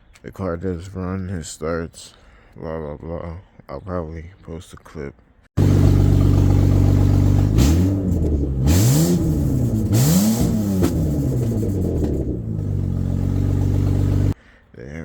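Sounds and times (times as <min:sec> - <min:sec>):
car engine idling and revving: 0:05.6 - 0:14.4.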